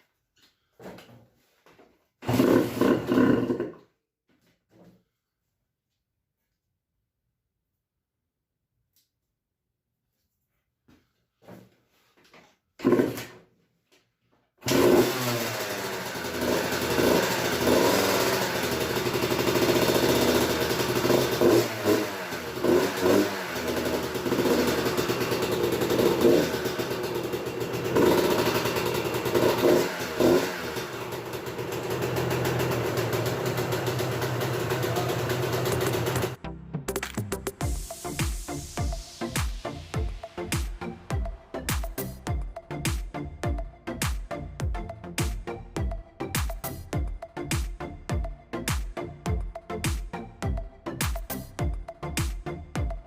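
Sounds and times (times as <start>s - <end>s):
two-stroke motorcycle engine revving: 2.2s - 3.8s, 12.8s - 13.3s, 14.6s - 36.4s.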